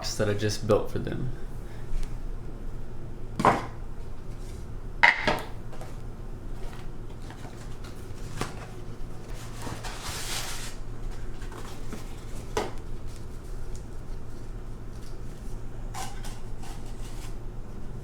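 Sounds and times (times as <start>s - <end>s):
paper filters rustling: 5.7s - 17.4s.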